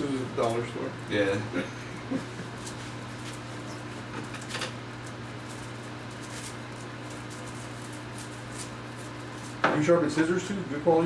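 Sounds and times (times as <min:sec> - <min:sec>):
faint rustles and clicks: 0:02.1 - 0:09.6.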